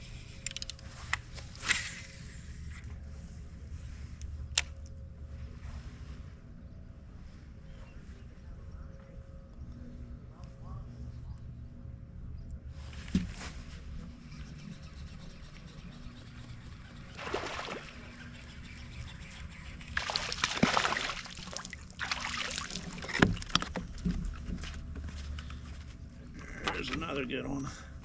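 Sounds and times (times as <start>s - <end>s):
steady low rumble: 0.0s - 17.2s, 21.2s - 28.0s
water sloshing against boat hull: 17.0s - 26.0s
water splashing: 17.2s - 18.2s, 19.9s - 23.7s.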